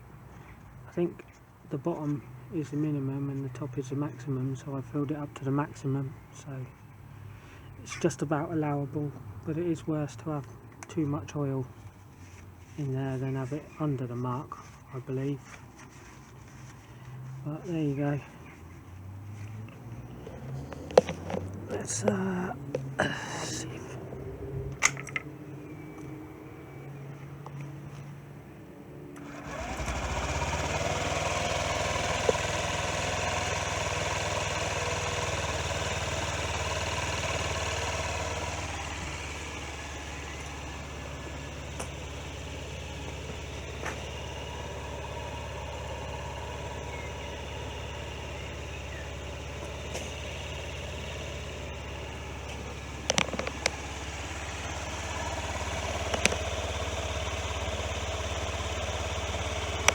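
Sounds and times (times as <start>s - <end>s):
small scooter engine idling: 0.0s - 24.0s, 29.2s - 59.9s
sharp clicks: 53.0s - 54.0s, 55.6s - 56.8s.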